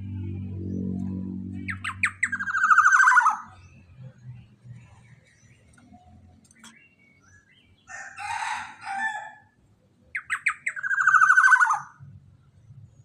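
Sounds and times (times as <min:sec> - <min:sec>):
oriole calling: 0:01.6 - 0:03.6, 0:10.2 - 0:12.0.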